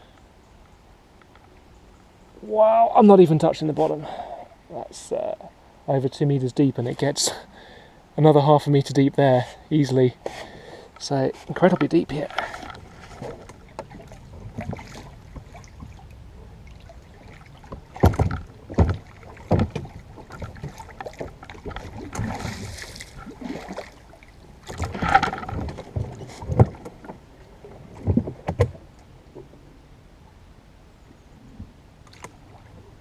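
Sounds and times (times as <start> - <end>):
water swish: 11.3 - 29.8, 31.5 - 33.0
oar knocking against boat: 17.7 - 23.3, 24.6 - 27.2.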